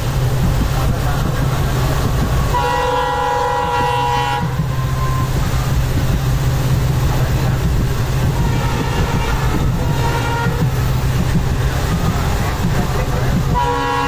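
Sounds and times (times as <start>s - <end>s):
moving train rumbling: 0.0s - 14.0s
train horn: 2.5s - 5.4s, 8.2s - 10.9s, 13.4s - 14.0s.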